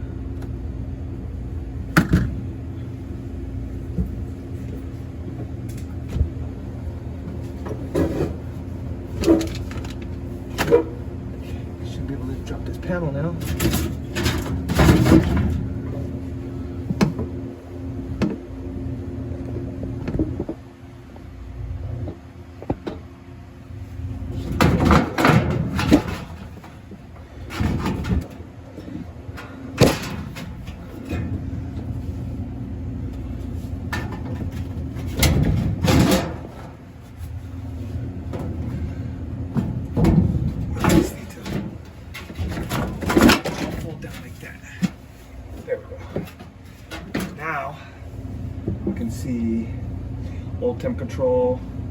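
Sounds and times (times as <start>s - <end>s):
steady background hum: 0.0s - 51.9s
sheet metal clanking and rattling: 13.4s - 15.8s, 24.4s - 31.4s, 33.9s - 36.8s, 39.6s - 45.0s.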